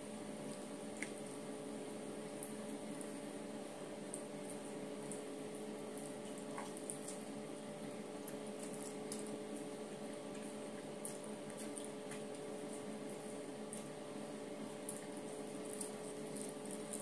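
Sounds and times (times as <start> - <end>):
steady electrical hum: 0.0 - 17.0
wet chewing: 5.9 - 7.4, 8.2 - 14.1, 14.7 - 17.0.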